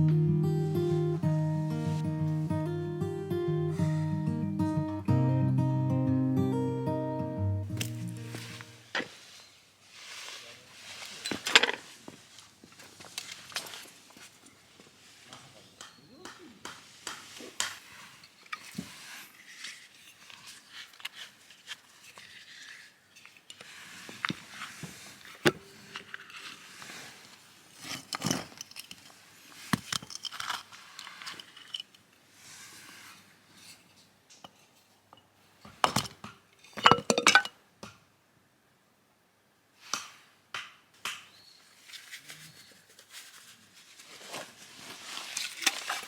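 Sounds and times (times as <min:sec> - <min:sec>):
packaging crinkling and tearing: 0:44.0 - 0:46.0.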